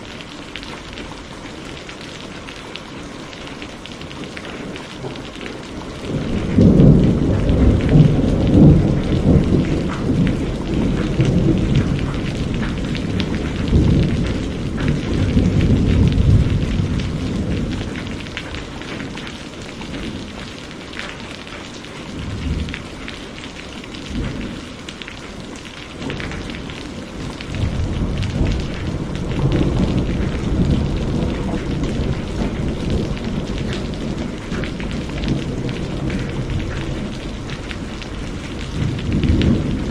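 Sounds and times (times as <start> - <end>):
steady rain: 0.0 - 39.9
rolling thunder: 5.9 - 19.3, 26.0 - 39.9.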